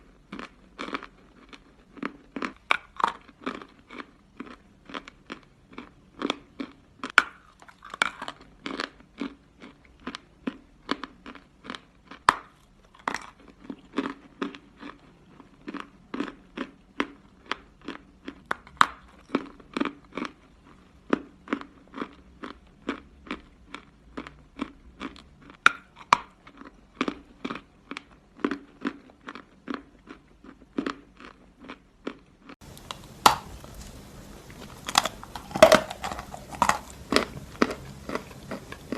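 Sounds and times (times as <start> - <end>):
person chewing crunchily: 0.0 - 38.9
background hiss: 32.6 - 38.9.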